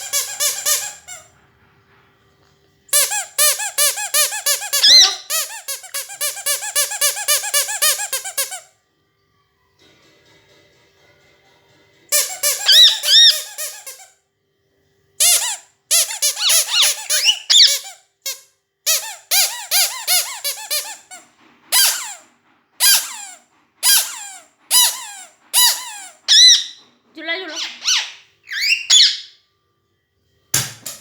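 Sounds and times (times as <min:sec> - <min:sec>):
parrot whistling: 0:00.0 - 0:01.2, 0:03.0 - 0:08.6, 0:12.1 - 0:14.0, 0:15.2 - 0:17.9, 0:22.8 - 0:26.8, 0:27.5 - 0:29.4
parrot downward-sliding calls: 0:03.0 - 0:08.0, 0:12.2 - 0:14.0, 0:15.2 - 0:17.9, 0:22.8 - 0:26.8, 0:27.5 - 0:29.4.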